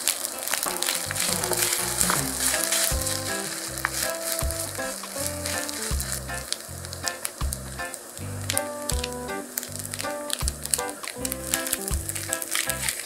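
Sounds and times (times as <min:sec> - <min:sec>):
rice sizzling in frying pan: 0:00.0 - 0:08.8
background music with bass line: 0:00.7 - 0:12.9.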